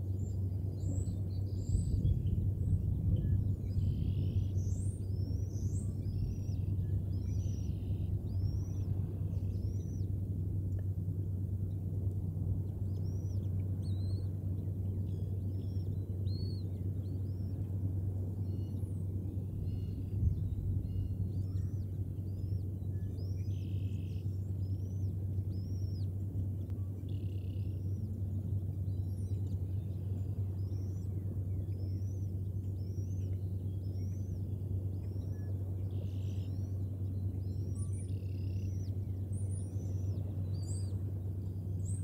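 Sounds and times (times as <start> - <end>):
steady low hum: 0.0 - 42.0
birds chirping: 0.1 - 10.3, 12.6 - 42.0.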